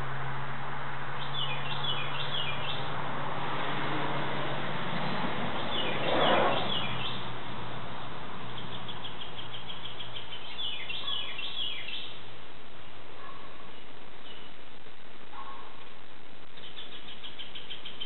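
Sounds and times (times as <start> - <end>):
small birds chirping: 1.2 - 2.9, 5.0 - 7.4, 8.5 - 12.3, 13.2 - 15.8, 16.4 - 18.0
outdoor hiss and low hum: 10.5 - 18.0.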